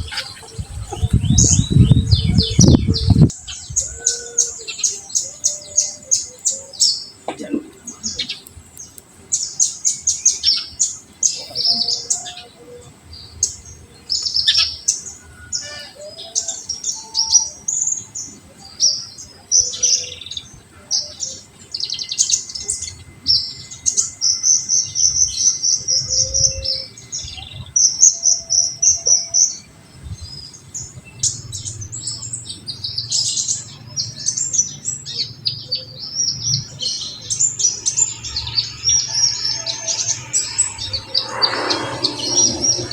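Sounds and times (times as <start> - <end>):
bird chirping and trilling: 37.0 - 42.9.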